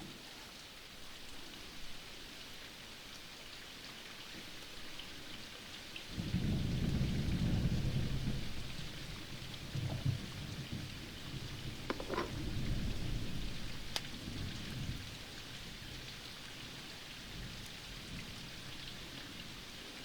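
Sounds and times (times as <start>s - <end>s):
rain falling: 0.0s - 20.0s
thunder rumbling: 6.1s - 15.1s.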